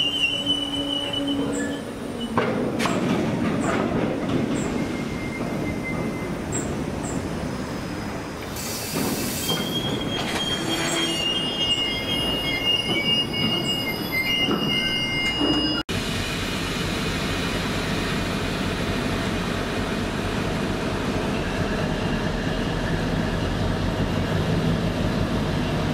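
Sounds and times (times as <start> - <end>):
train wheels squealing: 0.0 - 2.4, 4.5 - 7.2, 7.8 - 15.8
train rumbling by: 0.0 - 25.9.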